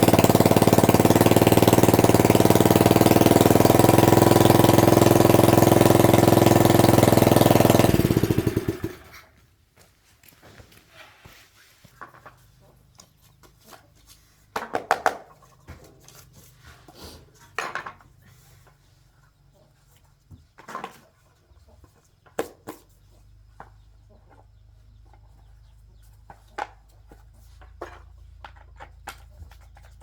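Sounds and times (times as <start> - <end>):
electric motor running: 0.0 - 9.0
motor spinning down: 0.0 - 9.1.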